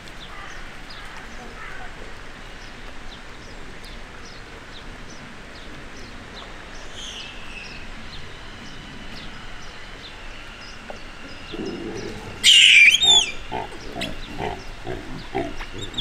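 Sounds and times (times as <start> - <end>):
steady background hiss: 0.0 - 16.0
small bird chirping: 10.6 - 16.0.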